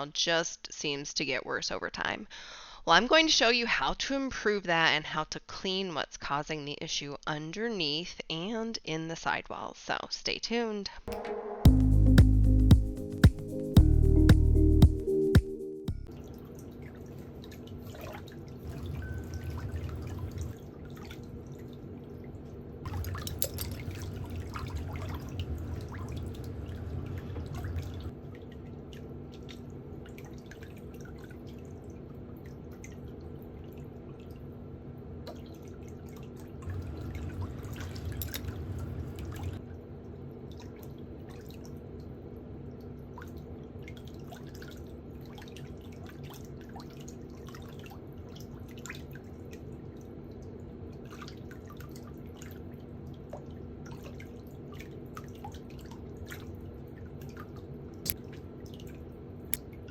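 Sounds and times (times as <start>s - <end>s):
water dripping in a basin: 16.0s - 22.2s, 22.9s - 34.4s, 35.3s - 39.6s
water swishing: 16.1s - 32.0s, 36.6s - 39.6s
steady low hum: 16.2s - 33.9s, 36.4s - 40.2s.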